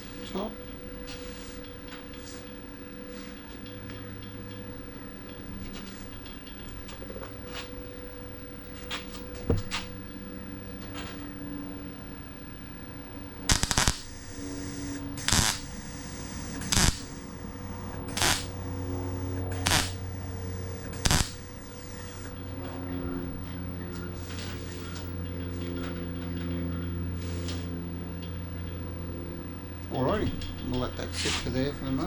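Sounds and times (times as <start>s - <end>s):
low hum: 11.8s - 28.1s
welding crackling: 13.5s - 22.4s.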